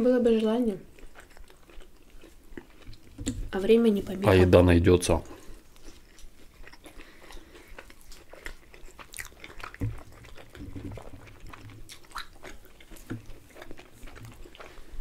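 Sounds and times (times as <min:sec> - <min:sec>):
chewing and biting pizza: 0:00.2 - 0:04.2, 0:05.3 - 0:15.0
wet mouth clicks: 0:06.0 - 0:14.8.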